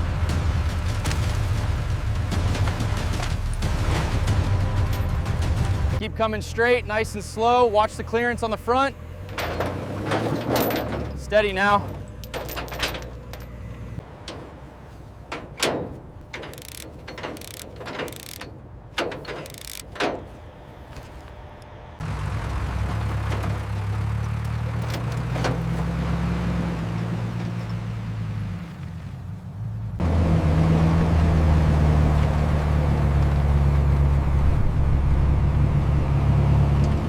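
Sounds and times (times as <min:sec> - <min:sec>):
mechanical clicks and clanks: 0:15.3 - 0:20.4.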